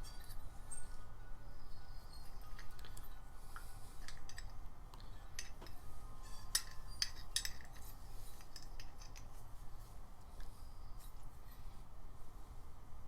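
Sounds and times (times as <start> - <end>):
hand tools clinking on metal: 3.9 - 4.6, 5.2 - 9.4.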